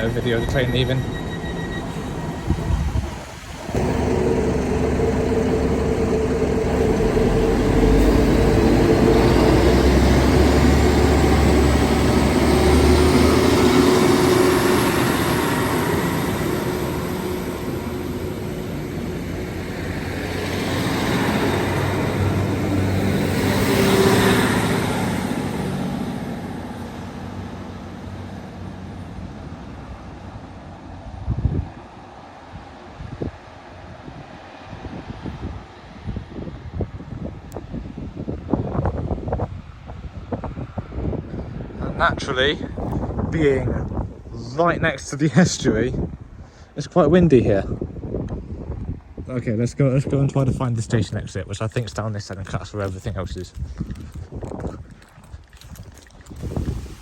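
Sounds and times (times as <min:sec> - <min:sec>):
diesel train engine pulling away: 0:00.0 - 0:36.7, 0:52.7 - 0:57.0.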